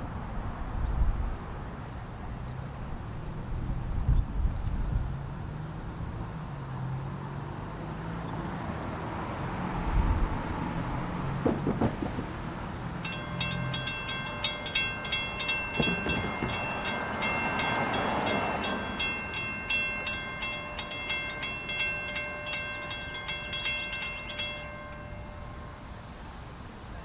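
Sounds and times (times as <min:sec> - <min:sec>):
railroad crossing warning bell: 0:09.2 - 0:27.0.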